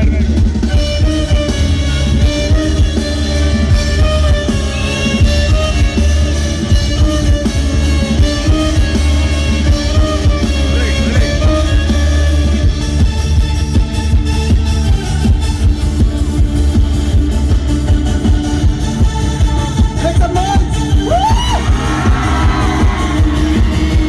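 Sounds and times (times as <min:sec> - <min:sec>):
rock band music: 0:00.0 - 0:24.0.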